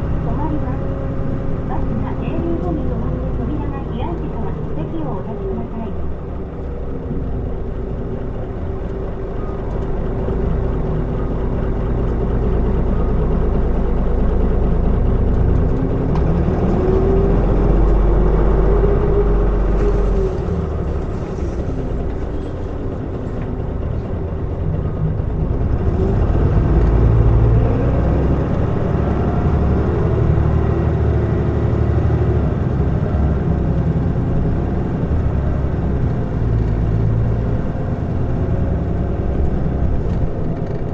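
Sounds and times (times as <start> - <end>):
bus diesel engine running: 0.0 - 40.9.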